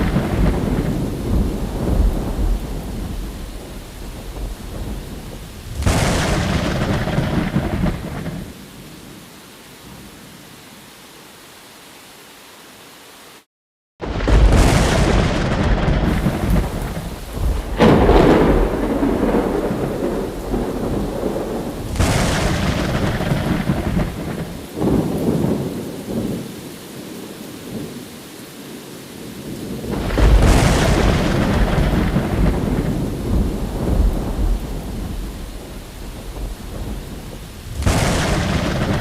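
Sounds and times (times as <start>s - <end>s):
thunder rolling: 0.0s - 8.6s, 14.0s - 26.4s, 29.6s - 39.0s
steady rain: 0.0s - 39.0s.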